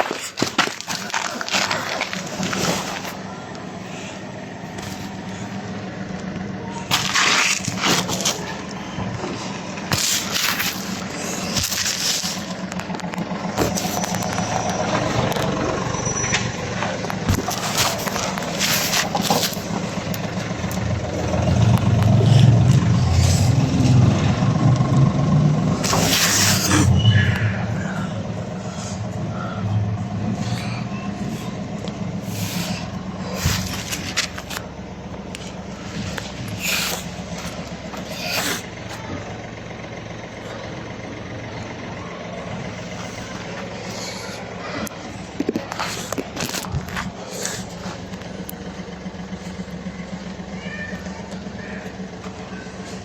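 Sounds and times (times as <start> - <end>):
vehicle engine idling: 0.0 - 53.0
scrapes and knocks: 16.8 - 20.5, 32.3 - 34.7.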